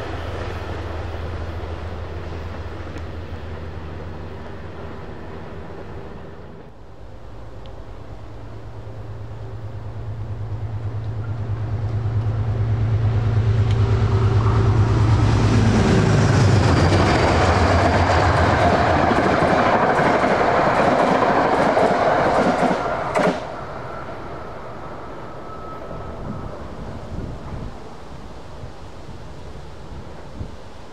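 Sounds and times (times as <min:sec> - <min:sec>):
train hum passing: 0:00.0 - 0:30.9
wheels clattering on rails: 0:10.6 - 0:23.6.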